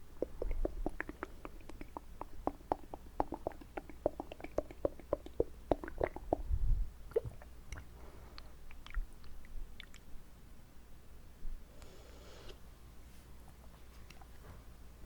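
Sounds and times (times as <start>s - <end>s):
wet mouth clicks and smacks: 0.1s - 6.5s, 7.1s - 10.1s.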